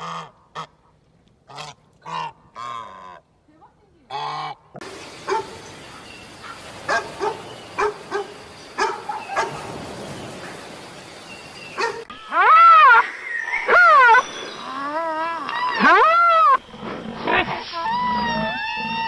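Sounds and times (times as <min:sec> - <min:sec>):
dog barking: 0:05.3 - 0:05.6, 0:06.4 - 0:09.8, 0:11.8 - 0:12.0
animal call rising and falling: 0:17.6 - 0:19.0.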